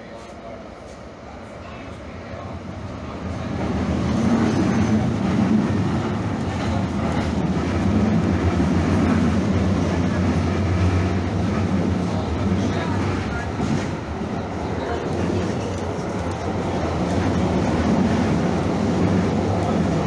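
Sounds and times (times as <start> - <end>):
light rail car rumbling: 0.0 - 20.0.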